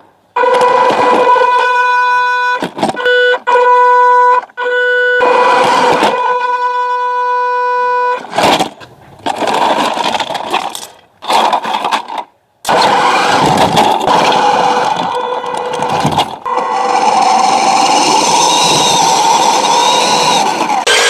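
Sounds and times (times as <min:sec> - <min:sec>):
model truck motor and gearbox: 0:04.8 - 0:21.0.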